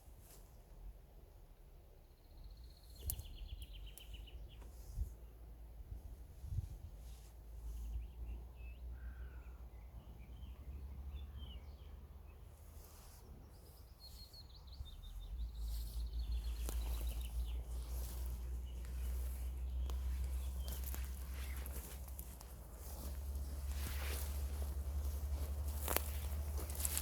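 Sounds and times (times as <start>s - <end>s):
songbirds chirping: 0.0s - 27.0s
low steady rumble: 14.7s - 27.0s.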